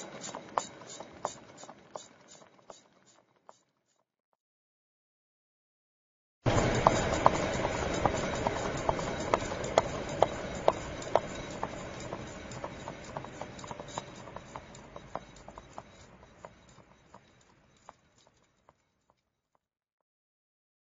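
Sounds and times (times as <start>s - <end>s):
car wheel spinning with ticks: 0.0s - 3.7s, 6.5s - 19.2s.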